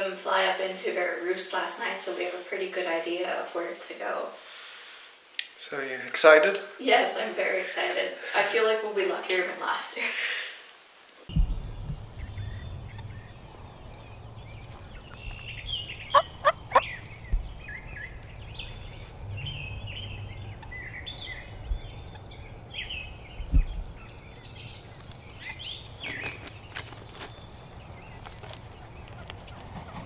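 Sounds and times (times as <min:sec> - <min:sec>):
songbirds chirping: 0:10.6 - 0:30.0
wild turkey calling: 0:11.4 - 0:30.0.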